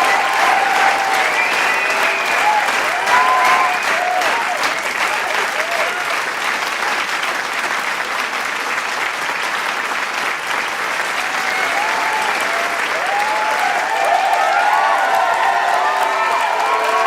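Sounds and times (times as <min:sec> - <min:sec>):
cheers and whistles: 0:00.0 - 0:06.1, 0:11.2 - 0:17.0
crowd clapping: 0:00.0 - 0:17.0.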